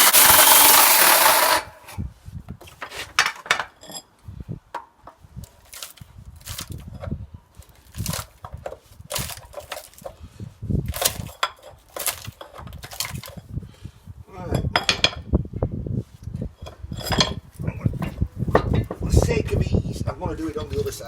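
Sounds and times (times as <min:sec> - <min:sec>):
metal clanking and knocking: 0:14.5 - 0:15.3, 0:16.6 - 0:19.3.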